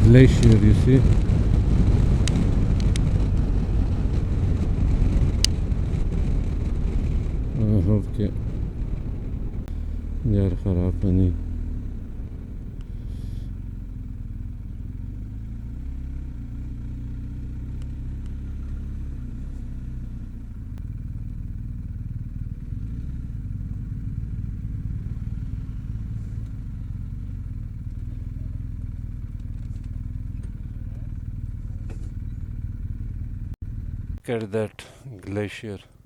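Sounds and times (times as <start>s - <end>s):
motorcycle engine running: 0.0s - 34.2s.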